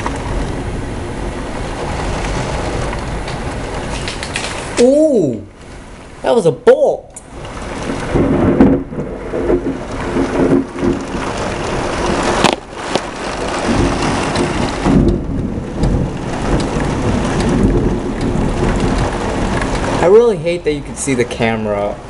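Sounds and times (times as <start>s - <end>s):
heavy rain: 0.0s - 22.0s
thunder rumbling: 0.0s - 22.0s
sharp thunder crack: 7.3s - 20.2s.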